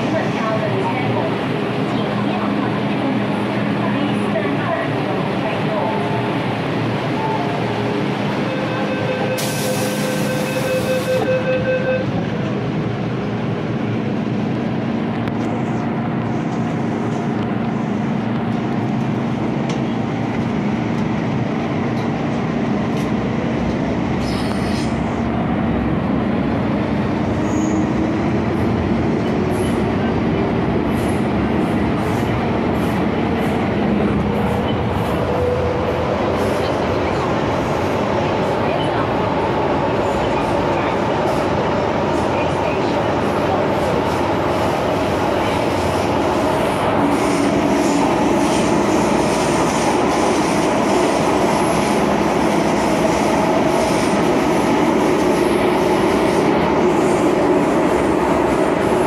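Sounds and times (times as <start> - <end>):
train wheels rumbling: 12.2 - 59.0.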